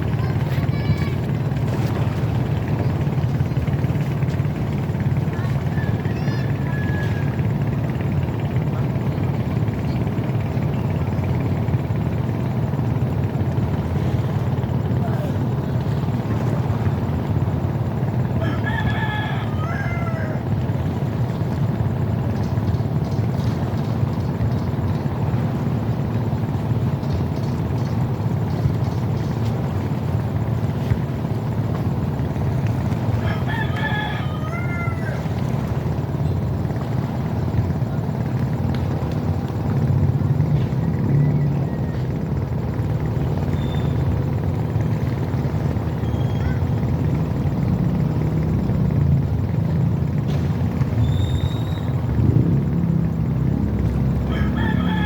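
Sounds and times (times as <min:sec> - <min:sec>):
rooster crowing: 0:05.7 - 0:07.3, 0:18.4 - 0:20.6, 0:33.2 - 0:35.6, 0:46.3 - 0:46.7, 0:54.2 - 0:55.0.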